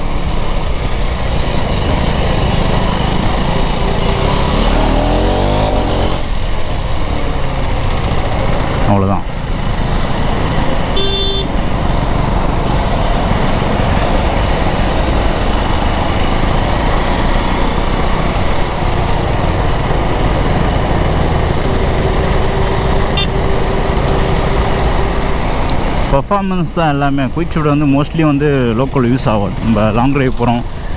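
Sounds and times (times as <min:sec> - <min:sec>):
motorcycle engine: 0:00.0 - 0:30.9
vehicle horn toot: 0:10.9 - 0:11.6, 0:23.1 - 0:23.5.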